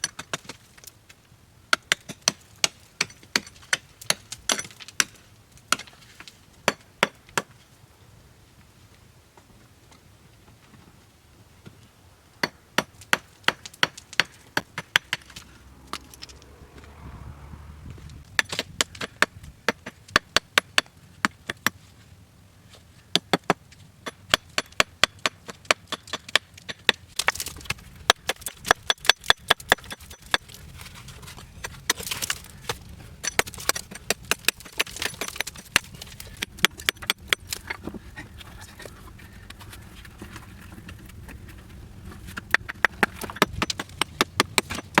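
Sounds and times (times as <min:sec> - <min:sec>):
chopping wood: 0:23.1 - 0:30.5, 0:42.4 - 0:45.0.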